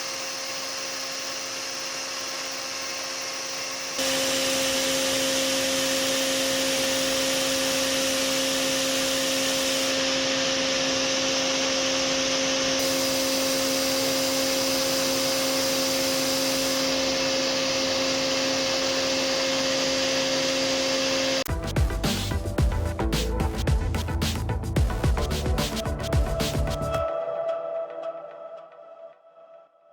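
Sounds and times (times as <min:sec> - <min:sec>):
milling machine cutting: 0:00.0 - 0:21.5.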